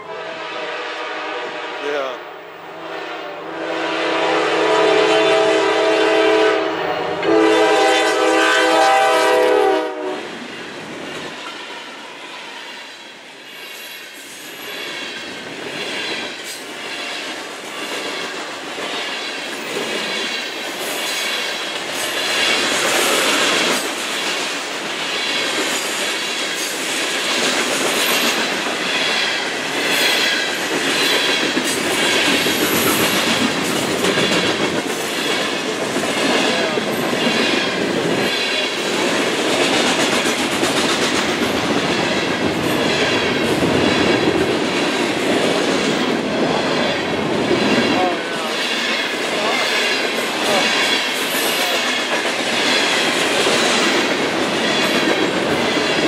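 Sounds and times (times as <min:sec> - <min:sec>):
locomotive horn blasts: 0:00.0 - 0:02.1, 0:02.7 - 0:10.3
train wheels clacking over rails: 0:07.2 - 0:56.0.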